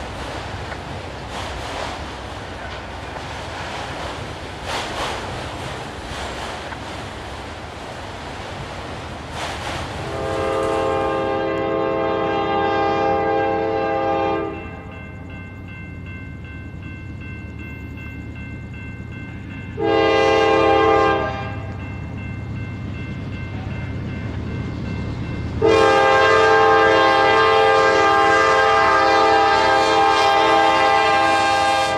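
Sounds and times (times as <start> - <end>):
train rumble: 0.0 - 31.9
locomotive air horn: 10.0 - 14.8, 19.8 - 21.7, 25.6 - 31.9.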